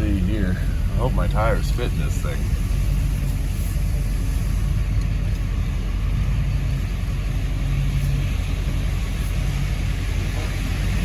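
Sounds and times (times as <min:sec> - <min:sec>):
pickup truck engine humming: 0:00.0 - 0:11.0.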